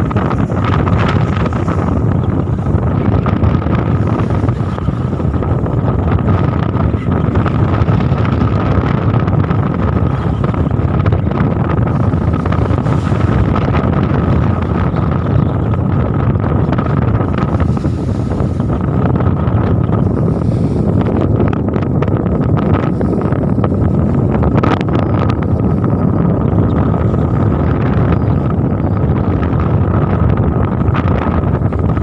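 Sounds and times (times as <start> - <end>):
boat engine rumbling: 0.0 - 32.0
wind buffeting microphone: 0.0 - 32.0.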